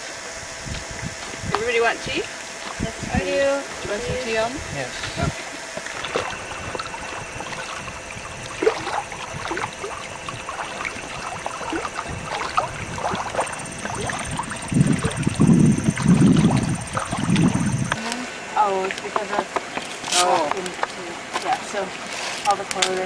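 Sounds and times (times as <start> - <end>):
loud low rumbling pulses: 2.8 - 18.0
small water splashes and drips: 5.8 - 18.0, 18.8 - 23.0.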